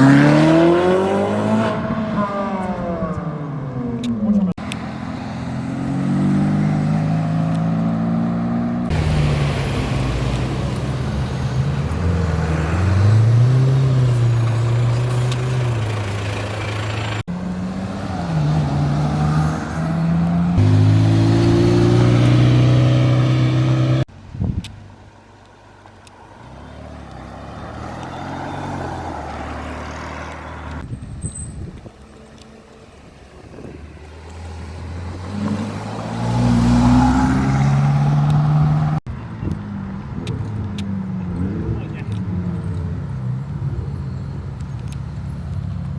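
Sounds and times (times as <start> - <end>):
car engines revving past: 0.0 - 24.1, 26.2 - 30.8, 32.2 - 45.9.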